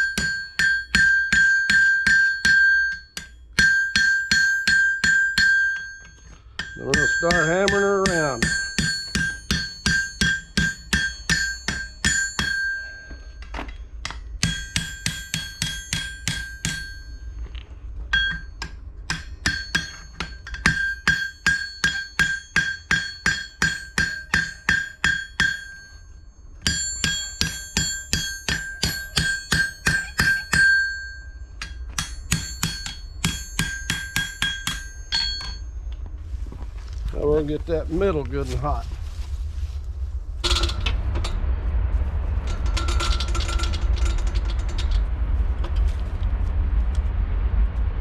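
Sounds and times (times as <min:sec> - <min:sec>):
hammer striking horseshoe on anvil: 0:00.0 - 0:17.3, 0:18.1 - 0:35.7.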